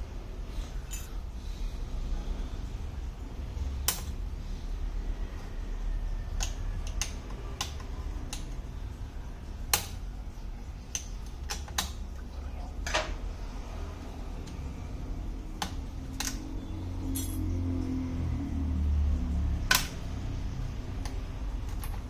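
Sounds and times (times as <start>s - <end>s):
steady low hum: 0.0s - 22.0s
small tools clicking on tablet: 6.3s - 8.7s.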